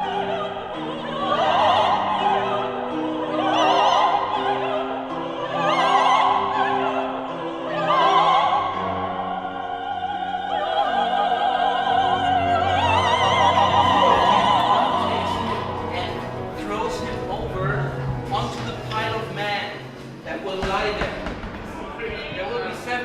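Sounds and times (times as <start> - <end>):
operatic singing: 0.0 - 23.0
sustained instrumental accompaniment: 10.9 - 23.0.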